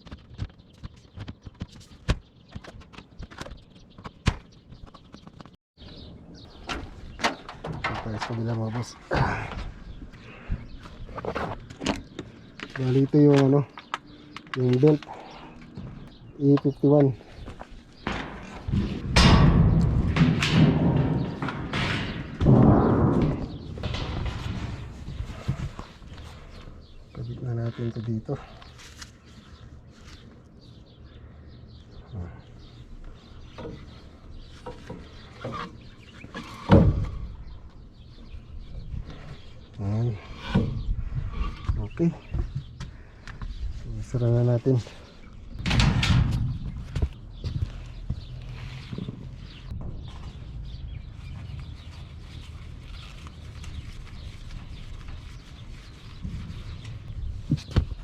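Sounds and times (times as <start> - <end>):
metal panel knocks and clicks: 18.0 - 25.3
loud thud: 18.1 - 25.6.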